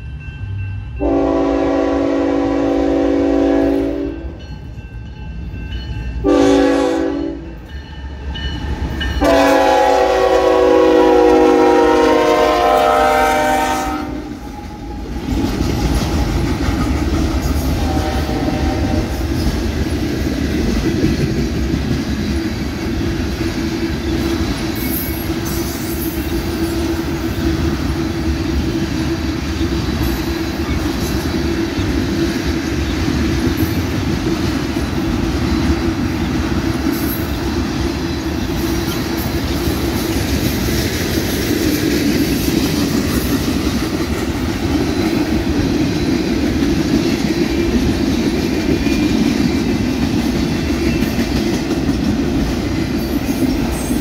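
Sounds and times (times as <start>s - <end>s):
train air horn blasts: 1.0s - 4.4s, 6.2s - 7.5s, 9.2s - 14.4s, 17.8s - 19.2s.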